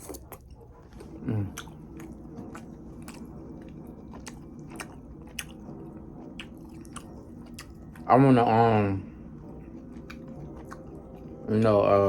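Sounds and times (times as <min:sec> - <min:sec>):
person chewing food: 0:00.1 - 0:08.1, 0:09.2 - 0:11.5
falling hum of voice: 0:01.1 - 0:01.8.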